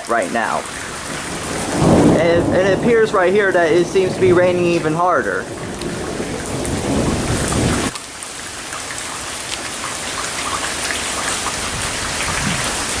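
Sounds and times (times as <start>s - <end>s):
heavy rain falling: 0.0s - 13.0s
low rumble: 1.4s - 7.9s.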